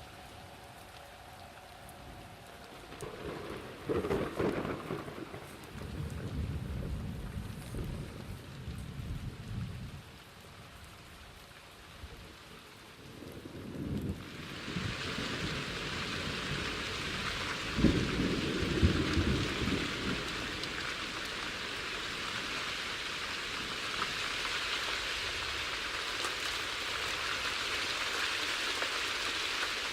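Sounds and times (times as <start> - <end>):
steady rain falling: 0.0 - 29.9
low rumble of thunder: 2.7 - 10.2, 13.0 - 21.6.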